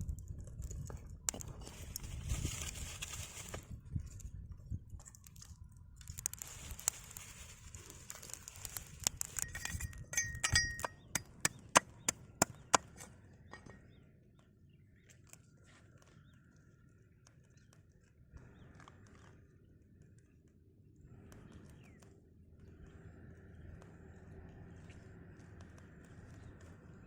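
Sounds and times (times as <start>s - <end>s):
clicks and clinks of food preparation: 8.0s - 13.8s.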